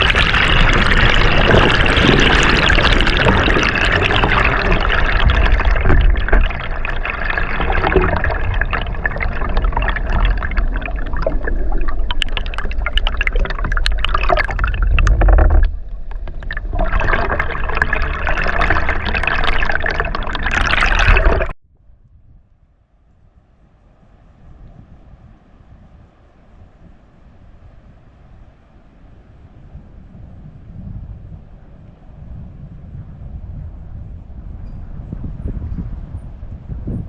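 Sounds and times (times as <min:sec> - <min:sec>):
rushing gurgling water: 0:00.0 - 0:21.6.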